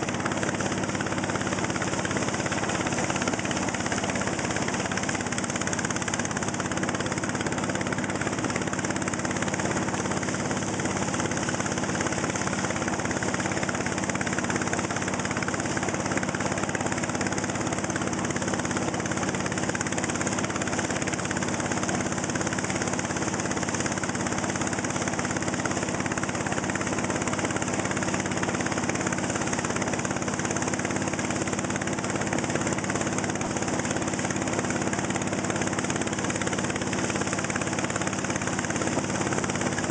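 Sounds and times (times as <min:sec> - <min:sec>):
motor boat engine running: 0:00.0 - 0:39.9.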